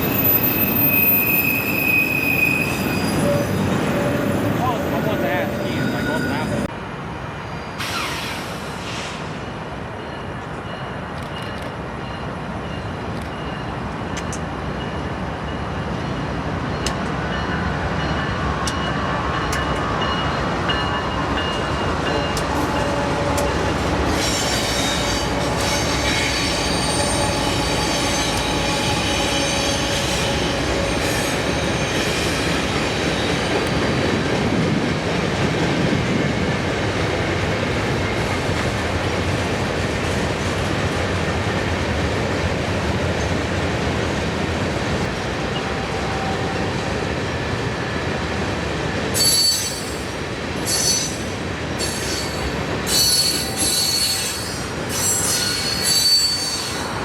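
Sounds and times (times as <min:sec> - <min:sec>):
wheel flanges squealing: 0:00.0 - 0:06.7, 0:23.5 - 0:32.6, 0:49.2 - 0:57.0
freight train wheels rumbling: 0:00.0 - 0:57.0.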